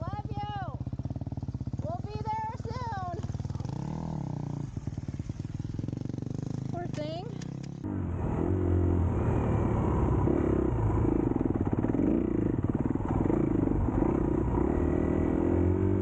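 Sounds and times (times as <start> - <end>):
dirt bike engine revving: 3.4 - 16.0.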